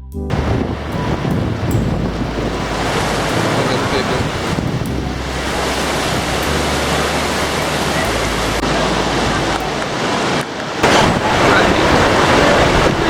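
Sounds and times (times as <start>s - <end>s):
rushing falling water: 0.3s - 13.0s.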